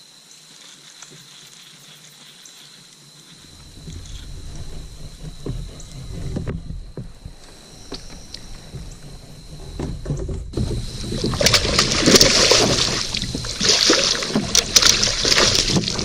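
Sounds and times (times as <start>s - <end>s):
water splashing around a kayak: 3.5s - 16.0s
knocks against kayak hull: 5.0s - 16.0s.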